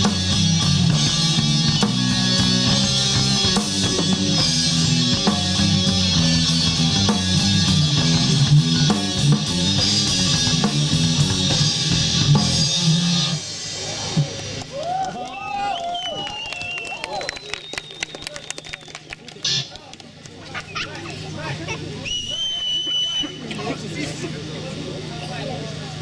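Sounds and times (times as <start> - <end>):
distorted electric guitars: 0.0 - 14.7, 19.4 - 19.8
drum kit: 0.0 - 15.0.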